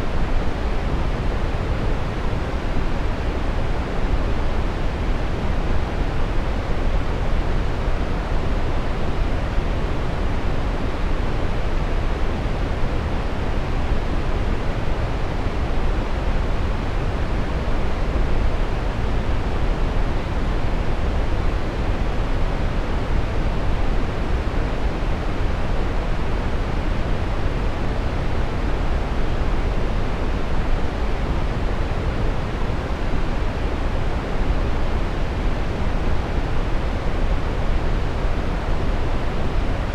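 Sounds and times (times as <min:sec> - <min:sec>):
brown noise rushing hiss: 0:00.0 - 0:39.9.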